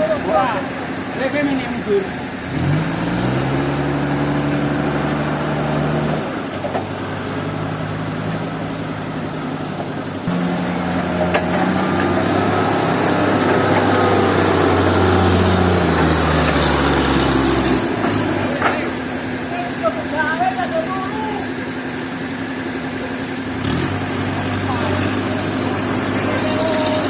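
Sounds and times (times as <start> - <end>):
engine running steadily: 0.0 - 27.0.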